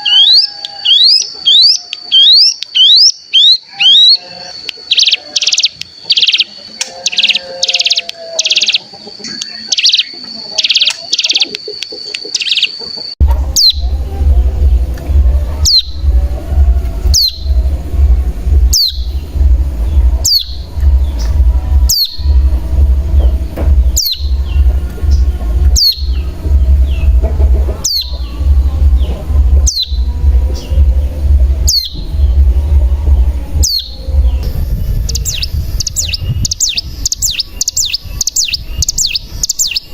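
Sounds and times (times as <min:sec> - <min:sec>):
bird calls: 0:00.0 - 0:39.9
low pulsing beat: 0:13.2 - 0:39.8.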